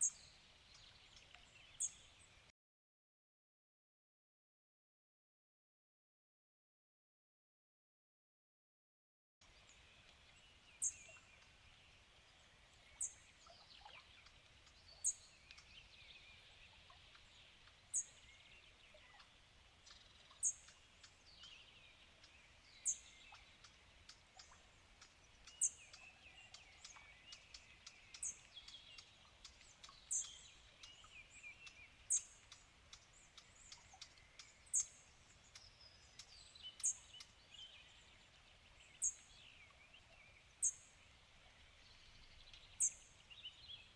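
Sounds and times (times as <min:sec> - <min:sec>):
birds chirping and twittering: 0:09.5 - 0:43.9.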